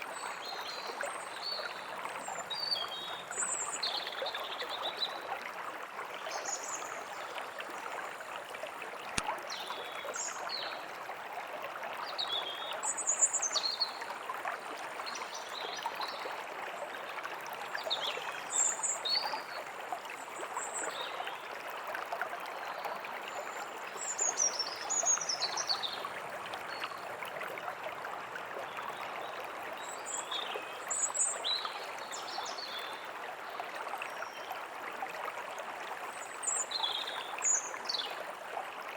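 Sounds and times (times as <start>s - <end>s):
forest stream running: 0.0s - 38.9s.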